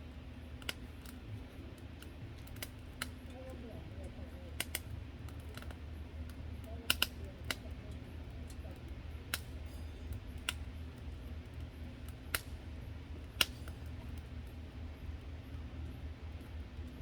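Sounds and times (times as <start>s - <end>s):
light clicks: 0.6s - 1.2s, 4.6s - 5.8s, 6.6s - 8.6s.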